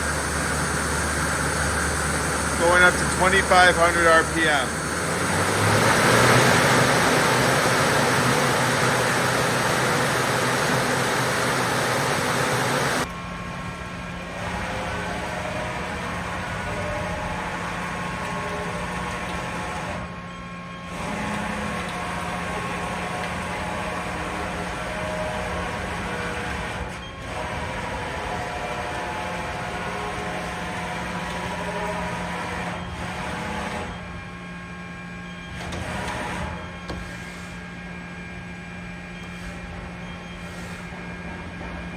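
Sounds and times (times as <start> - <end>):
lathe spindle whirring: 0.0 - 40.3
machine hum with low drone: 0.0 - 41.9.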